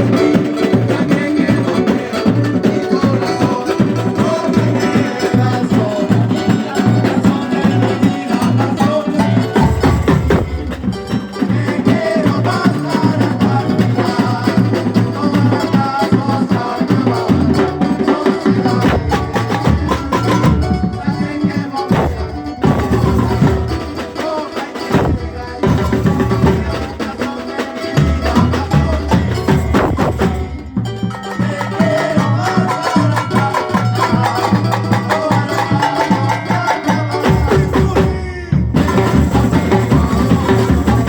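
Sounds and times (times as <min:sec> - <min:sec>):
drums and percussion: 0:00.0 - 0:41.0
live band playing: 0:00.0 - 0:41.0
bass line: 0:09.5 - 0:11.3, 0:18.8 - 0:24.1, 0:24.9 - 0:27.1, 0:28.0 - 0:31.6.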